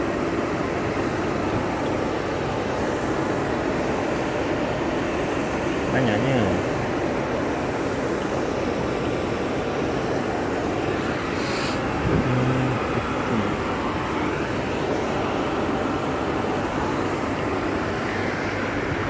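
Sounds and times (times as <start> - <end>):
brief hiss: 11.3 - 11.9.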